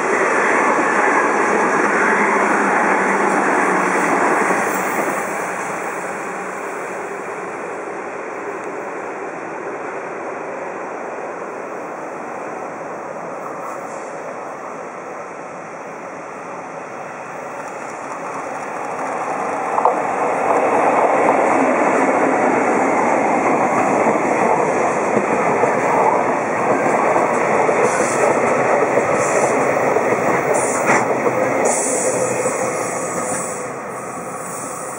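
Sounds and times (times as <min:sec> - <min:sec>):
train wheels rumbling on rails: 0:00.0 - 0:07.8, 0:17.3 - 0:34.9.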